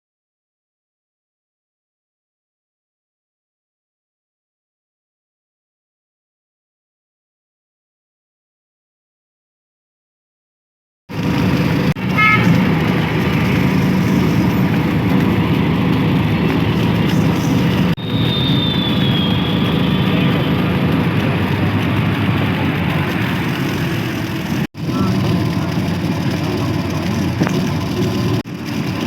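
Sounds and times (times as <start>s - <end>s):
vehicle running with road noise: 11.1s - 29.0s.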